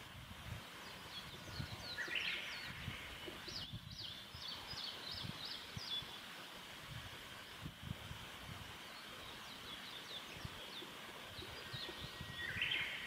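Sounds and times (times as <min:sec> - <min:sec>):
small bird singing: 0:00.8 - 0:06.3, 0:08.8 - 0:13.0.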